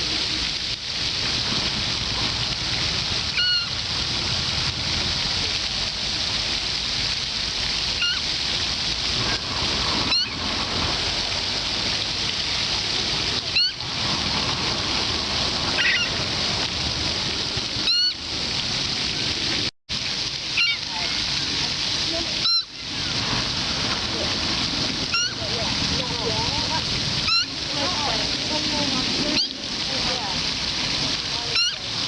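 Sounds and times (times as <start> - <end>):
moorhen calling: 15.8 - 16.1, 25.1 - 25.4.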